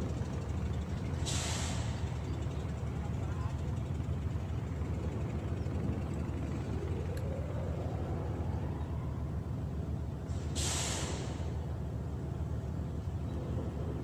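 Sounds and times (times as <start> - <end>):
engine rumbling: 0.0 - 14.0
burst of hiss: 10.4 - 11.5.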